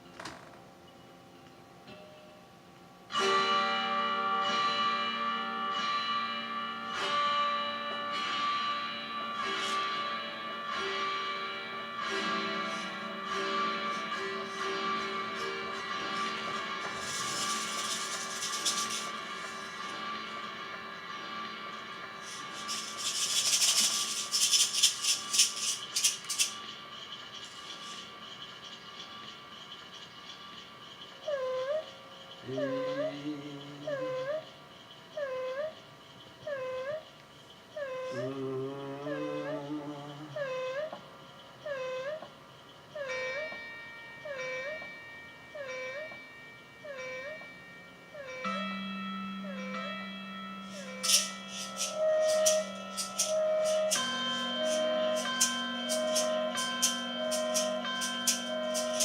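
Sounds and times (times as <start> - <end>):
drone of held tones: 0.8 - 59.0
autoharp strummed chords: 3.1 - 22.6
loud scratchy rubbing noise: 9.4 - 10.2, 12.0 - 20.6, 22.1 - 26.7, 50.7 - 59.0.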